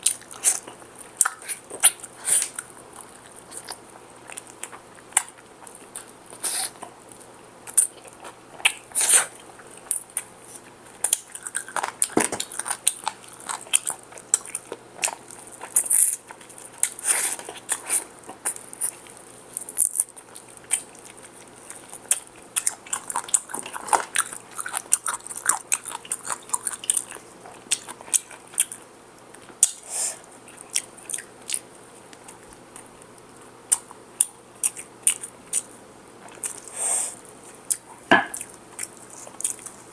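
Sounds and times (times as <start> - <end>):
crunching and chewing fried chicken: 0.0 - 39.9.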